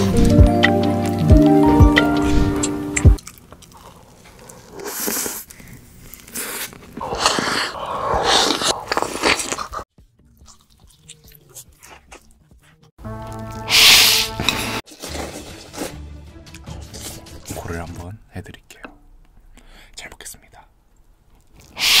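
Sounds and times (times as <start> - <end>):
person biting and chewing food: 0.0 - 16.0.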